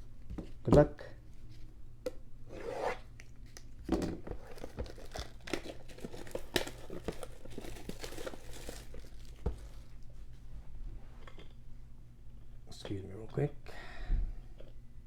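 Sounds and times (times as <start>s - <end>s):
plastic wrapping crinkling and tearing: 3.2s - 10.0s.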